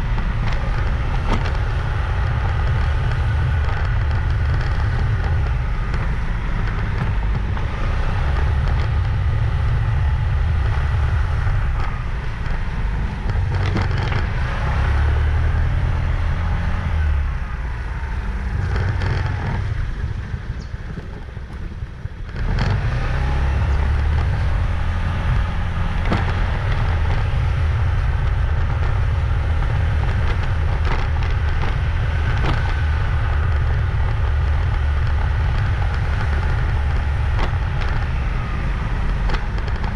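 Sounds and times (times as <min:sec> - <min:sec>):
motorbike engine rumble: 0:00.0 - 0:39.9
road noise: 0:00.0 - 0:39.9.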